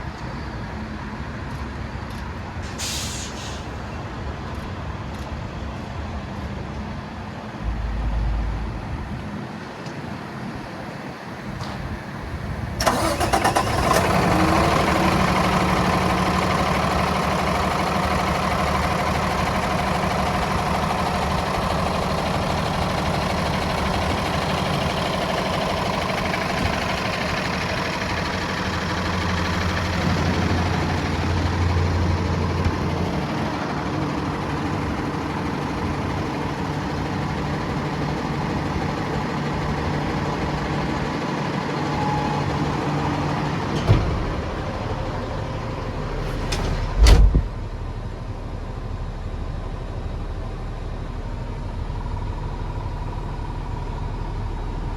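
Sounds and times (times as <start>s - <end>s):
diesel engine idling: 0.0s - 54.9s
loud thump: 43.8s - 44.6s, 46.3s - 47.6s.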